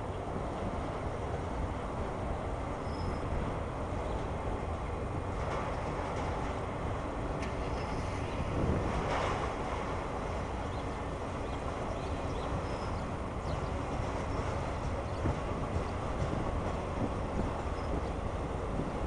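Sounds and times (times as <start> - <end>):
train wheels rumbling on rails: 0.0 - 19.0
light clicks and clunks: 7.4 - 7.9.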